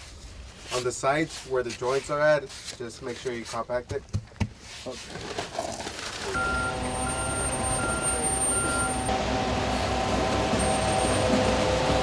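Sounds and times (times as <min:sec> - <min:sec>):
short beeping alarm: 0:06.4 - 0:09.1
machine engine running: 0:06.4 - 0:12.0.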